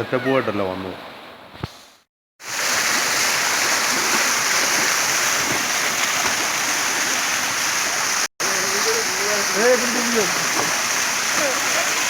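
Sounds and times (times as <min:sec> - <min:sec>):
waterfall rushing: 0:02.4 - 0:12.0.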